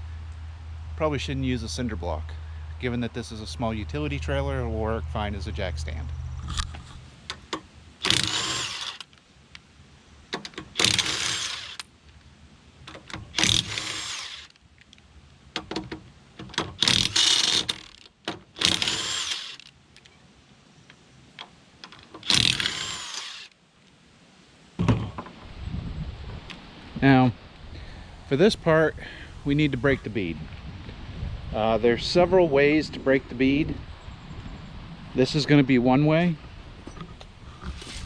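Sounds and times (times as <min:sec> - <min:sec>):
cordless power tool bursts: 0:08.0 - 0:09.1, 0:10.6 - 0:11.9, 0:13.3 - 0:14.6, 0:16.7 - 0:18.0, 0:18.6 - 0:19.7, 0:22.2 - 0:23.6.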